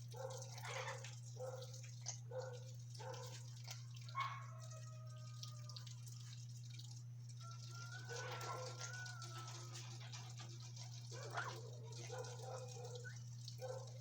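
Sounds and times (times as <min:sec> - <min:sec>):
parrots calling: 0:11.2 - 0:13.2.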